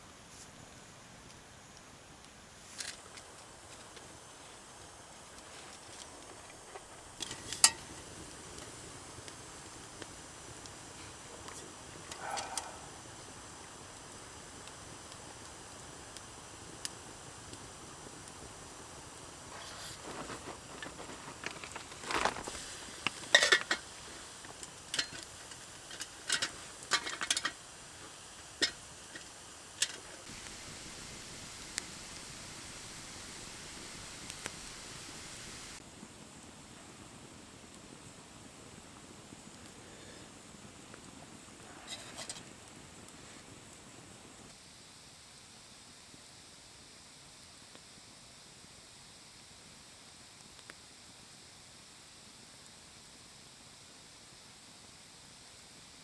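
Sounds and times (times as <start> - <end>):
faint steady background noise: 0.0 - 56.0
metal cookware clinking: 23.3 - 23.8, 25.9 - 27.6.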